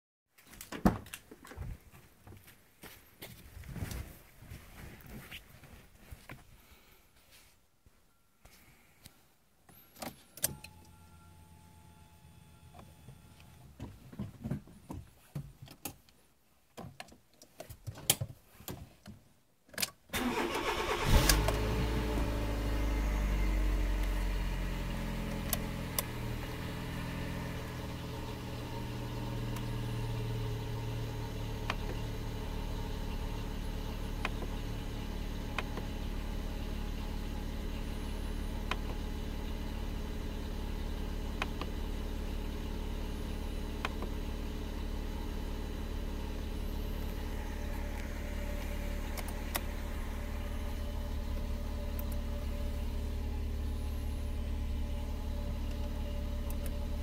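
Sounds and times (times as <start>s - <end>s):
car engine starting and idling: 20.1s - 57.0s.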